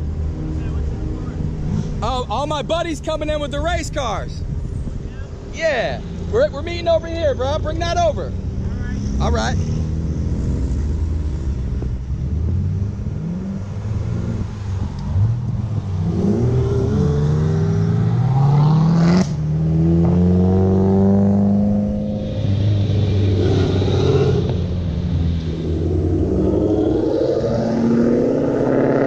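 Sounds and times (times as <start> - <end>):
car engines running: 0.0 - 29.0
engine revving up: 16.0 - 29.0.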